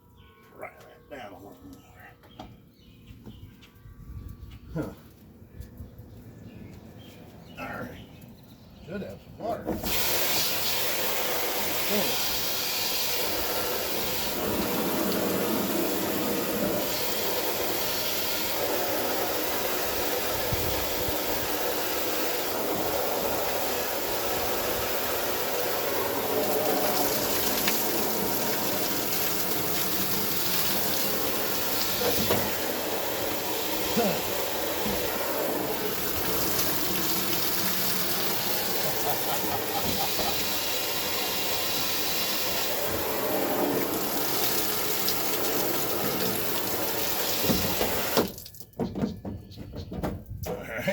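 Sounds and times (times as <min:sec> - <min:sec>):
hose spraying water: 0:09.8 - 0:48.6.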